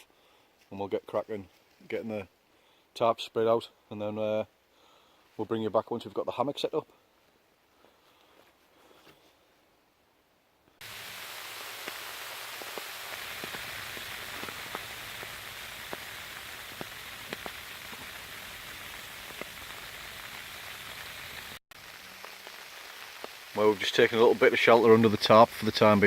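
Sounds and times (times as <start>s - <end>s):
hailstones ticking: 10.8s - 26.0s
rain and sleet hissing on tarp: 10.8s - 26.0s.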